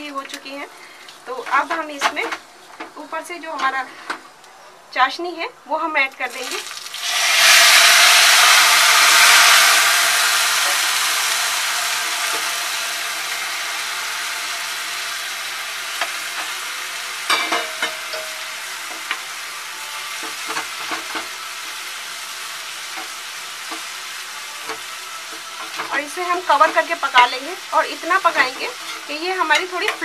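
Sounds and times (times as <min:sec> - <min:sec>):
vermicelli sizzling in a pan: 0:00.0 - 0:04.0, 0:05.8 - 0:30.0
utensil scraping a pan: 0:28.2 - 0:30.0.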